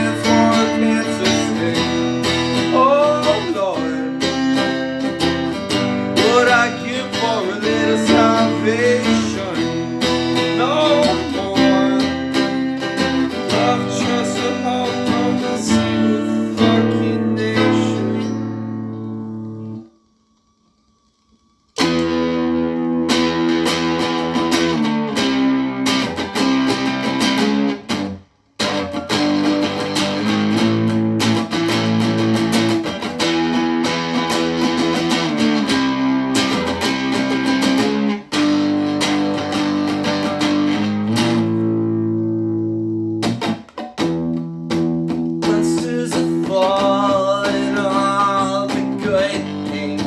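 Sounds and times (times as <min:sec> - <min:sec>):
guitar strumming chords: 0:00.0 - 0:20.0, 0:21.8 - 0:50.0.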